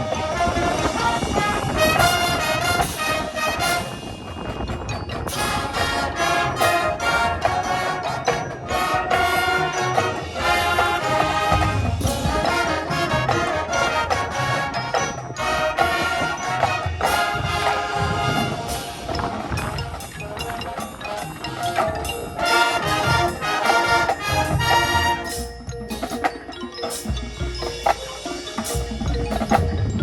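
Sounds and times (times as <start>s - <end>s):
brass band playing: 0.0s - 4.6s, 5.2s - 26.0s
wind rumbling on microphone: 0.0s - 7.7s, 17.2s - 22.5s, 28.8s - 30.0s.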